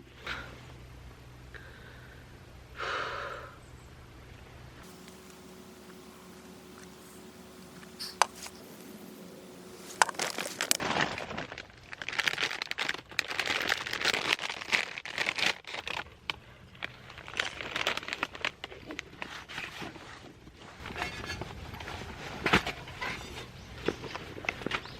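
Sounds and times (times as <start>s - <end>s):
crinkling and rustling material: 6.7s - 24.9s.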